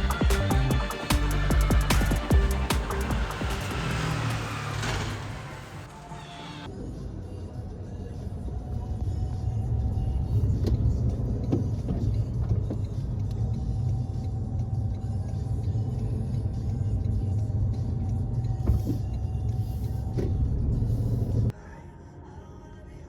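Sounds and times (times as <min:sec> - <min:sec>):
vehicle engine rumbling: 0:00.0 - 0:06.6.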